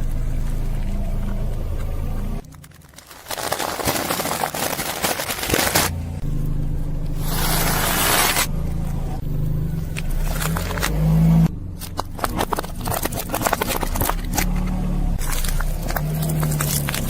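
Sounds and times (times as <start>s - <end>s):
car engine running low: 0.0s - 17.0s
tyre crushing objects: 2.4s - 6.2s, 9.9s - 17.0s.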